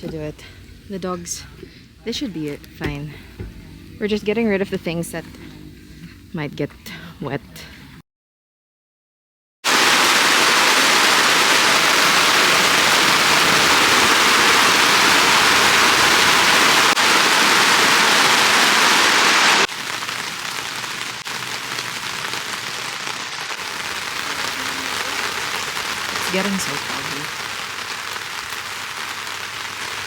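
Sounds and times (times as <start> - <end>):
heavy rain pouring: 9.7 - 30.0.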